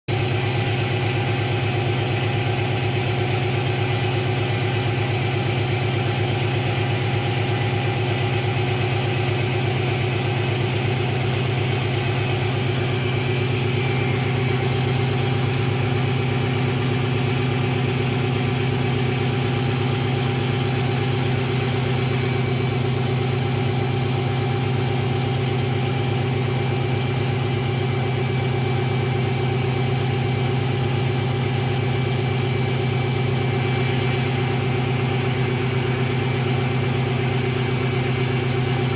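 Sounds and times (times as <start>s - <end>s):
car engine idling: 0.1s - 38.9s.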